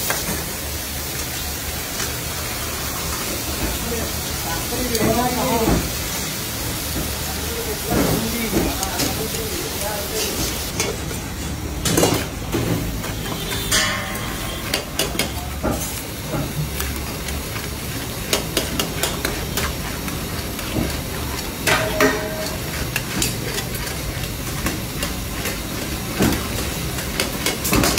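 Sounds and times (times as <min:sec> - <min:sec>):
food sizzling in a wok: 0:00.0 - 0:27.9
metal spatulas scraping a pan: 0:12.9 - 0:27.9.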